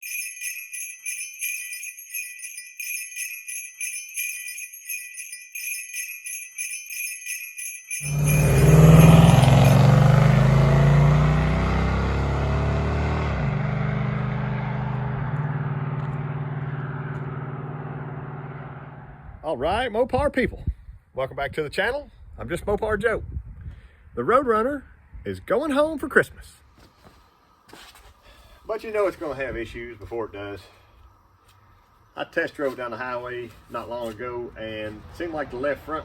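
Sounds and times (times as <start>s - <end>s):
sleigh bells jingling: 0.0s - 10.8s
car engine revving and idling: 8.1s - 19.2s.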